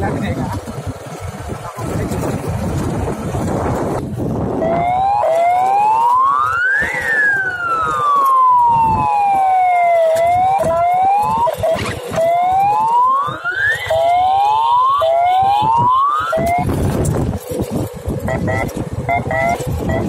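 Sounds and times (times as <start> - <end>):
motorcycle engine revving: 10.2 - 14.2, 15.0 - 20.0.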